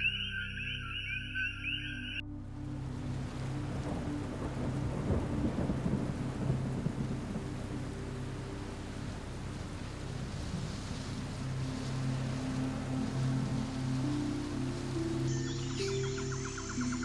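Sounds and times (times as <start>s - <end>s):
steady rain: 2.3s - 17.0s
thunder rumbling: 2.8s - 15.3s.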